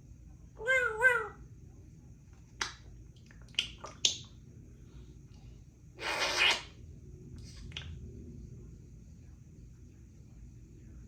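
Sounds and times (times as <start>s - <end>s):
parrot hissing: 6.0s - 6.8s.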